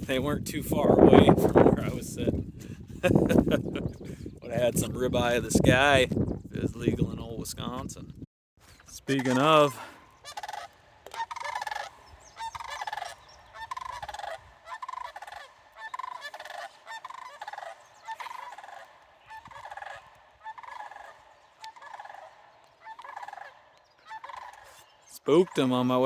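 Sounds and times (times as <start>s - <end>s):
cranes giving trilled calls: 8.7s - 25.9s.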